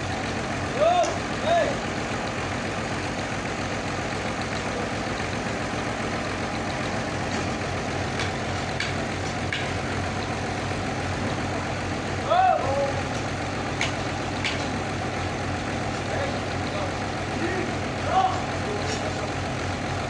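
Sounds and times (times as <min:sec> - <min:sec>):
sawmill engine humming: 0:00.0 - 0:20.0
faint clicks and knocks: 0:13.1 - 0:14.8.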